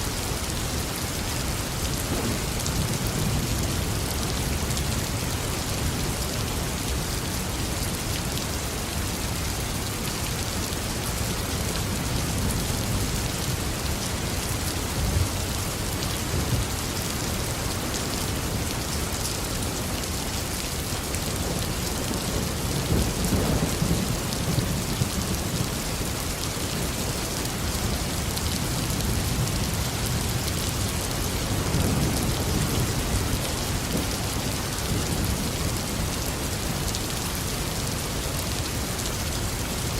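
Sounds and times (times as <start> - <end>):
heavy rain falling: 0.0 - 39.9
low thunder rumbling: 21.4 - 27.1.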